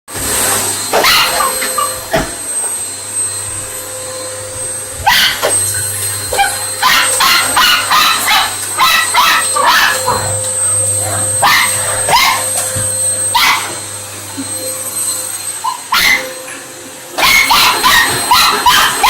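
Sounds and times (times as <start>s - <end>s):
vacuum cleaner humming: 0.1s - 19.0s
dog barking: 0.9s - 1.9s, 5.0s - 5.6s, 6.3s - 10.4s, 11.3s - 12.6s, 13.3s - 13.8s, 15.6s - 16.3s, 17.2s - 19.0s.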